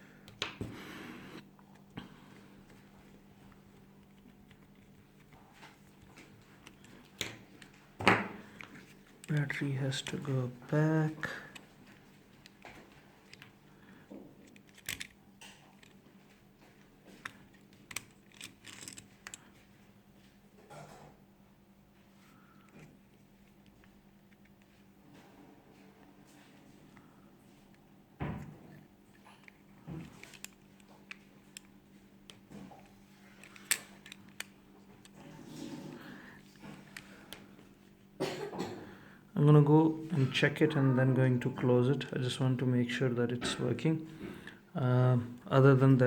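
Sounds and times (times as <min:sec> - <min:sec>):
faint steady hum: 0:00.0 - 0:46.0
plastic parts clicking and tapping: 0:14.1 - 0:16.0, 0:17.2 - 0:19.6
small plastic parts clicking: 0:14.4 - 0:16.0, 0:17.2 - 0:19.5, 0:29.4 - 0:31.7, 0:33.4 - 0:35.2.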